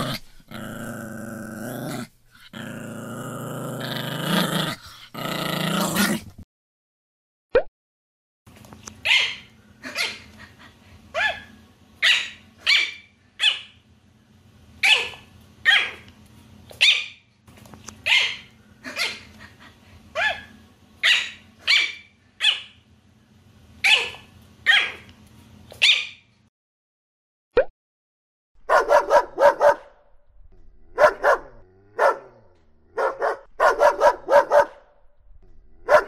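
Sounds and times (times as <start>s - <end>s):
low background hum: 8.5s - 26.5s, 28.7s - 36.0s
small dog yapping: 9.0s - 10.2s, 11.2s - 13.7s, 14.8s - 16.0s, 16.8s - 17.2s, 18.0s - 19.2s, 20.2s - 22.7s, 23.8s - 25.0s.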